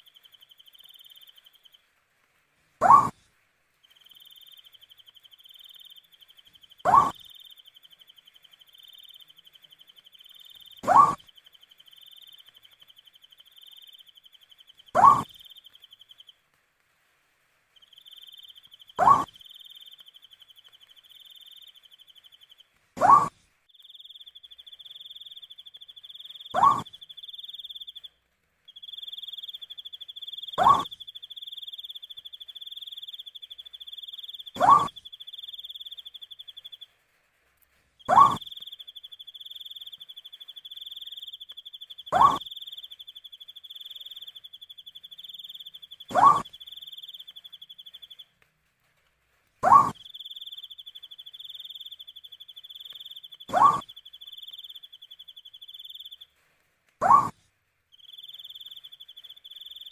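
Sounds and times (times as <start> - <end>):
owl hooting: 2.8 - 3.2, 4.0 - 16.2, 17.9 - 22.4, 23.0 - 28.1, 28.8 - 36.8, 38.0 - 48.2, 49.6 - 56.3, 57.0 - 57.4.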